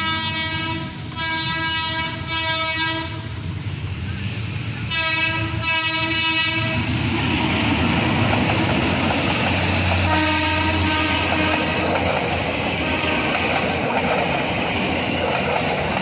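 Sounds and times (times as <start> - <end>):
locomotive horn blasts: 0.0 - 3.3, 4.9 - 6.9, 10.0 - 11.9, 12.8 - 13.5
wheel noise on rails: 0.0 - 16.0.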